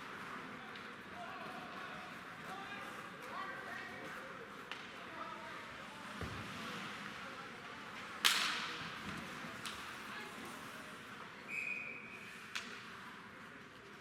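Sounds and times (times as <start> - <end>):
sharp crack of puck strike: 8.2 - 8.8
high whistle: 11.5 - 12.3.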